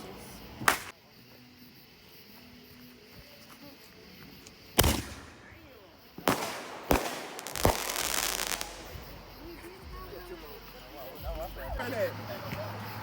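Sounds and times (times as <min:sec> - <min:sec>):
fireworks bangs: 0:00.6 - 0:00.9, 0:04.8 - 0:10.1.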